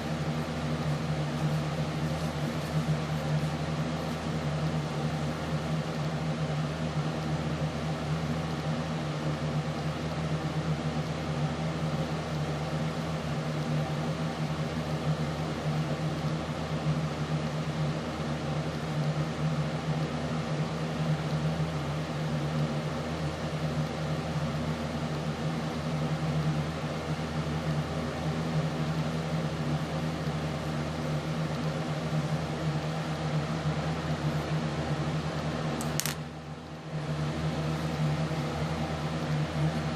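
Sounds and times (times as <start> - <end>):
steady mechanical hum: 0.0 - 39.9.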